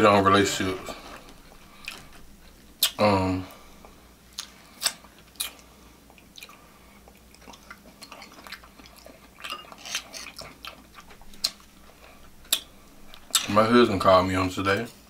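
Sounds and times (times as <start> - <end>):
chewing soft meat: 0.7 - 13.7
wet mouth smacks: 2.8 - 3.0, 4.3 - 5.6.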